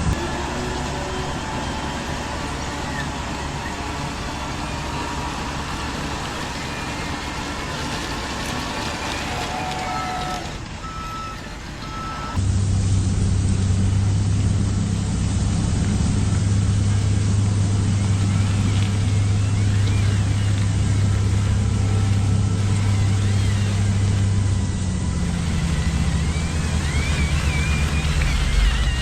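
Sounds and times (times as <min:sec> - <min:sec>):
low engine hum: 0:00.0 - 0:29.0
small motors and gears hissing: 0:00.1 - 0:12.4, 0:16.3 - 0:29.0
reversing beeper beeps: 0:00.3 - 0:12.4.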